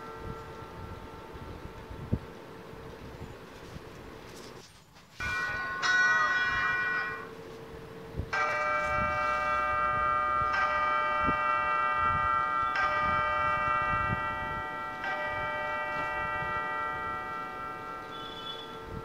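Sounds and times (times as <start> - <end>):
bell-toned chimes: 5.2 - 7.4.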